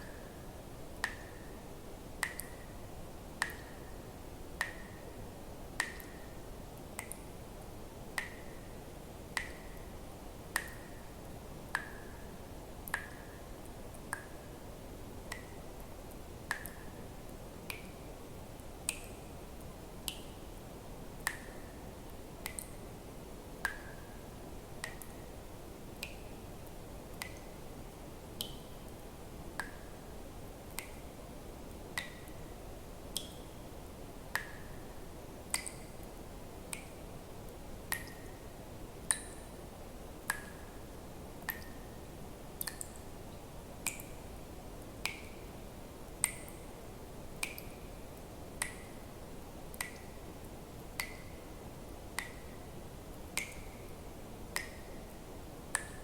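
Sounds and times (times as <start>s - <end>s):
low background noise: 0.0s - 56.0s
water drops plinking into water: 2.2s - 2.7s, 3.4s - 4.0s, 4.6s - 5.1s, 5.8s - 6.4s, 7.0s - 7.3s, 8.2s - 8.7s, 9.3s - 9.9s, 10.5s - 11.1s, 11.7s - 12.2s, 12.8s - 13.4s, 15.3s - 15.9s, 16.5s - 16.9s, 21.2s - 21.8s, 22.4s - 22.8s, 23.6s - 24.1s, 24.8s - 25.2s, 32.0s - 32.4s, 33.1s - 33.5s, 34.3s - 34.8s, 35.5s - 37.0s, 37.9s - 38.4s, 39.1s - 39.5s, 40.3s - 40.6s, 41.4s - 41.8s, 42.6s - 43.1s, 43.8s - 44.2s, 45.0s - 45.4s, 46.1s - 46.6s, 47.4s - 47.8s, 49.7s - 50.1s, 50.9s - 51.4s, 53.4s - 53.9s, 54.5s - 55.1s, 55.7s - 56.0s.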